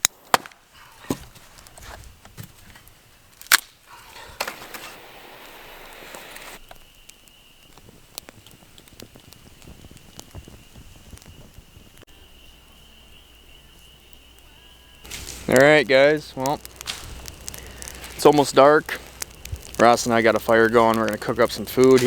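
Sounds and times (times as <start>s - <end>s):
sharp crack: 0.0s - 1.8s, 3.3s - 12.0s, 14.1s - 22.0s
campfire crackling and popping: 0.0s - 22.0s
brief hiss: 3.9s - 6.8s, 15.0s - 15.8s.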